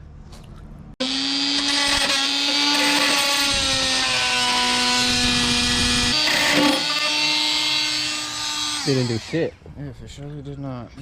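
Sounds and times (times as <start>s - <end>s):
power tool whining: 1.0s - 9.5s.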